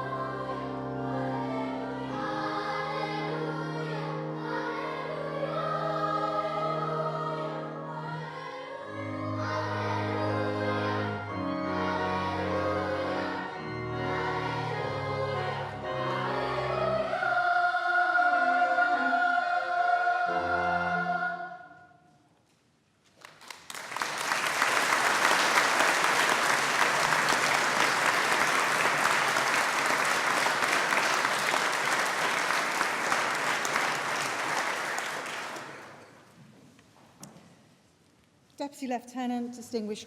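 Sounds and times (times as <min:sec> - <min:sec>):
children's choir singing: 0:00.0 - 0:22.0, 0:24.5 - 0:36.3
audience applauding: 0:23.2 - 0:36.2.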